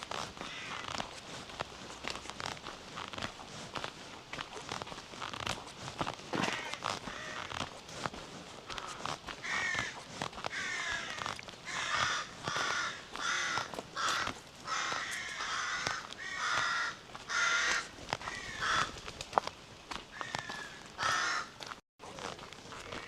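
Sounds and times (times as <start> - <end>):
birds cawing: 0.4 - 0.9, 6.4 - 7.6, 8.7 - 19.0, 20.1 - 21.6.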